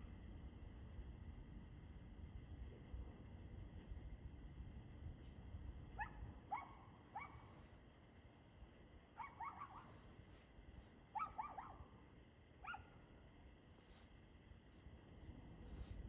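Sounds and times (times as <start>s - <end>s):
dog barking in high yaps: 6.0s - 7.4s, 9.2s - 9.9s, 11.2s - 11.9s, 12.6s - 12.9s.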